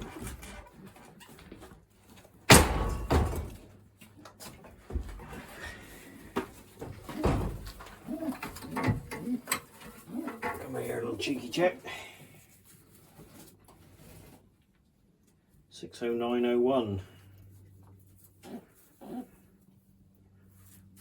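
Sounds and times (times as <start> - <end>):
sharp knocks: 2.5 - 3.6
pigeons cooing: 7.0 - 10.7, 18.4 - 19.4.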